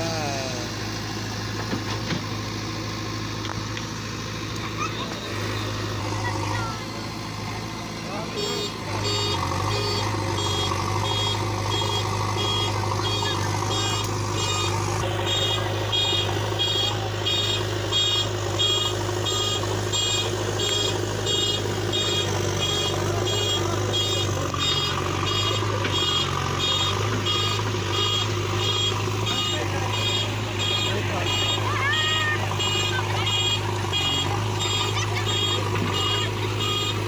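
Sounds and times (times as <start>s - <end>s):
diesel engine running: 0.0s - 37.0s
reversing alarm beeping: 8.2s - 37.0s.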